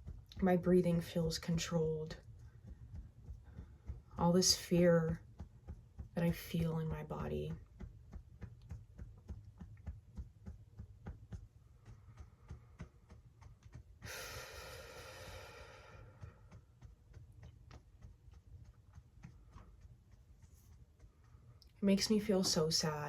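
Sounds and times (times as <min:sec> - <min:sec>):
fingertips tapping on body: 0:00.0 - 0:23.0
long deep breath: 0:14.0 - 0:16.3.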